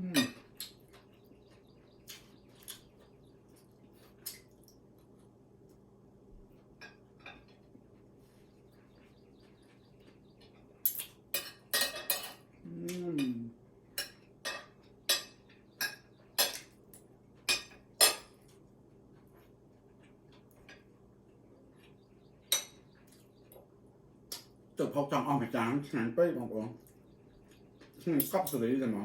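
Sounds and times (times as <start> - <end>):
utensils clinking on plates: 6.8 - 7.7, 10.8 - 12.5, 14.0 - 18.4, 28.0 - 28.9.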